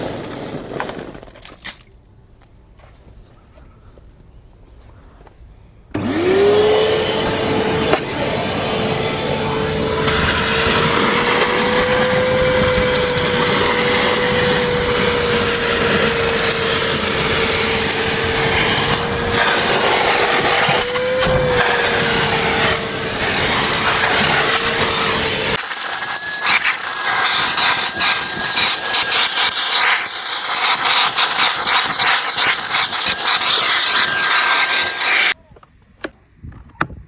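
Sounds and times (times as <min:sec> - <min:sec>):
vacuum cleaner motor whine: 0:06.0 - 0:35.4.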